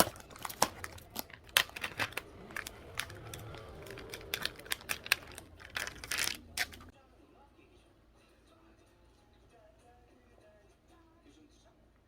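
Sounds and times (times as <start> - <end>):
crinkling: 0.0 - 6.9.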